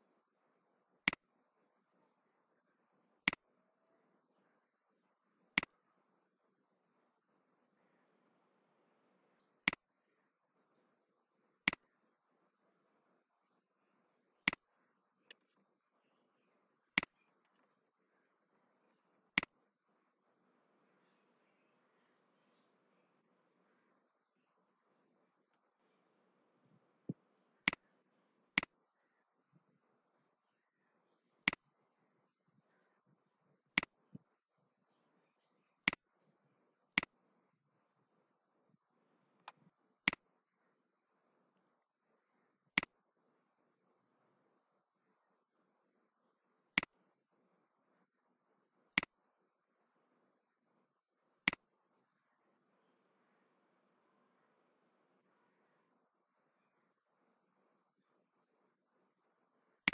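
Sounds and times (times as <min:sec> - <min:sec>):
computer mouse clicking: 0:03.2 - 0:03.4, 0:11.7 - 0:11.9, 0:14.4 - 0:14.6, 0:27.6 - 0:27.9, 0:31.4 - 0:31.6, 0:35.8 - 0:36.0, 0:39.4 - 0:40.2.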